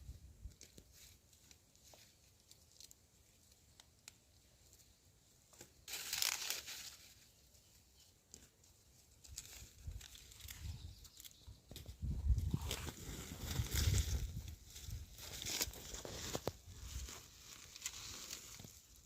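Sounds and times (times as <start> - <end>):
small crackles: 0.4 - 19.0
dry leaves rustling and tearing: 5.8 - 7.3, 9.2 - 11.4, 12.5 - 19.0.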